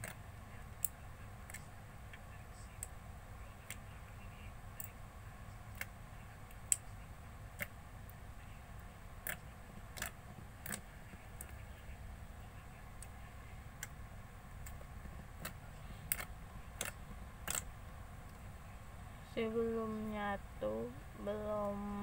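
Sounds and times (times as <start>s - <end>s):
slime clicking and popping: 15.4s - 17.7s.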